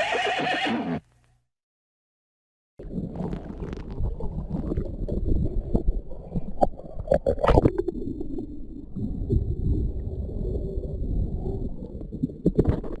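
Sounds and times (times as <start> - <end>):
underwater rumble and gurgling: 2.8 - 13.0.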